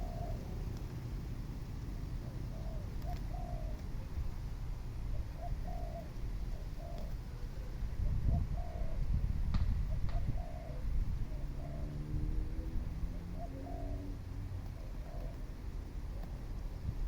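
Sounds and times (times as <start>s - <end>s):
low drawn-out cooing: 0.0s - 0.6s, 2.2s - 3.8s, 5.1s - 9.1s, 9.9s - 14.2s, 14.8s - 16.4s
doves cooing: 0.0s - 9.2s, 9.8s - 16.9s.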